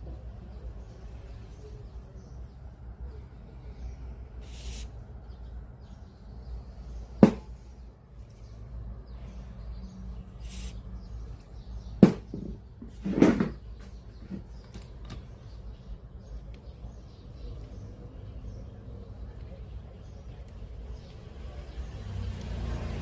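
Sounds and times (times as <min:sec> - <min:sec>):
sharp knocks: 0:07.2 - 0:07.6, 0:12.0 - 0:13.6.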